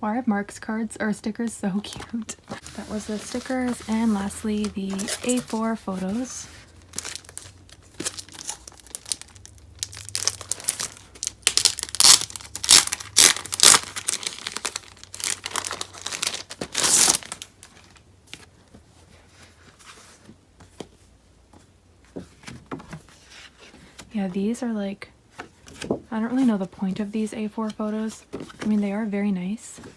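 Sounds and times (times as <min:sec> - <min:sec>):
packaging crinkling and tearing: 0:03.2 - 0:18.0.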